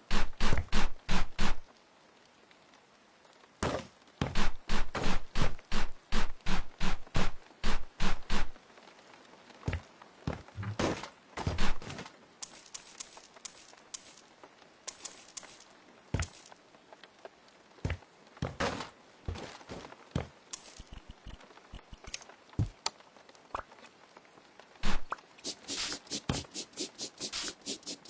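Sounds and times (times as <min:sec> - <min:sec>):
objects knocked and set down: 0:10.3 - 0:14.3, 0:14.9 - 0:16.6, 0:17.9 - 0:21.4
light metallic clinking and jingling: 0:11.8 - 0:16.6, 0:20.5 - 0:22.0.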